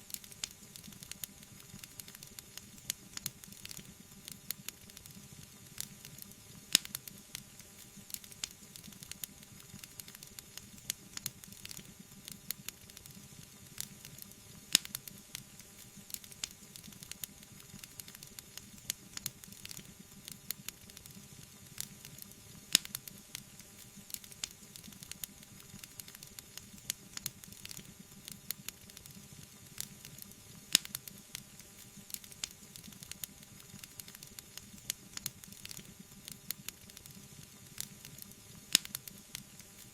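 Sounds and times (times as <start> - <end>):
wood fire crackling: 0.1 - 39.9
sharp fire pops: 29.8 - 31.2, 37.8 - 39.1.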